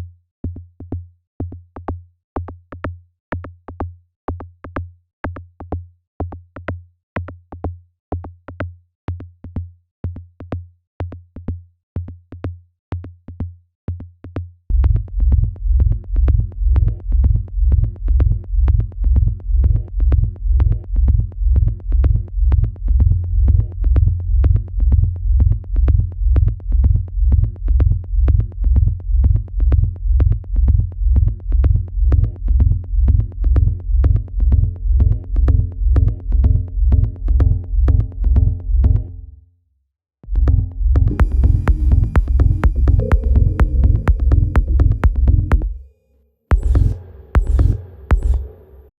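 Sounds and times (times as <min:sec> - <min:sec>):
looping kick drum: 0:07.3 - 0:39.3, 0:40.2 - 0:45.9, 0:46.5 - 0:48.8
heavy sustained bass: 0:40.3 - 0:45.8
quiet high synth notes: 0:41.1 - 0:46.1.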